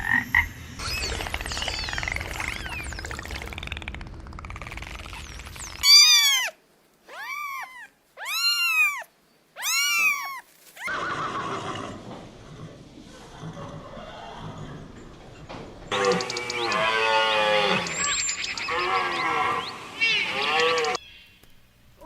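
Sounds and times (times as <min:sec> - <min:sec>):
cat meowing: 0:05.8 - 0:10.9.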